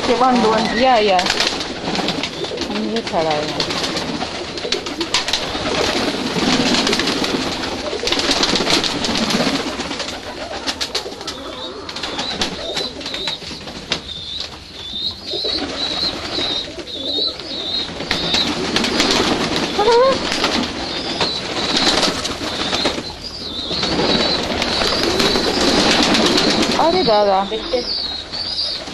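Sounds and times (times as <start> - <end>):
doves cooing: 0.0 - 28.9
small bird warbling chirp: 19.7 - 28.9.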